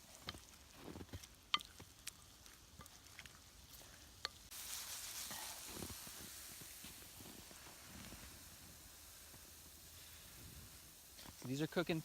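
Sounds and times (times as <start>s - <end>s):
food frying with pops: 0.0s - 12.0s
oil sizzling in pan: 0.0s - 12.0s.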